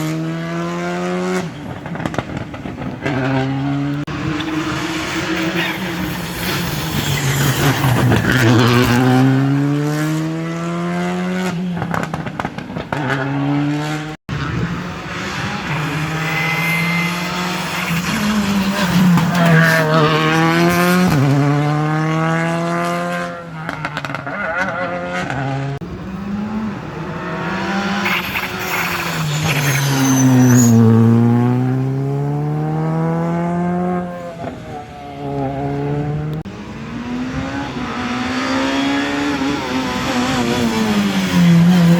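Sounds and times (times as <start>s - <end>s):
rally car engines revving: 0.0s - 41.9s.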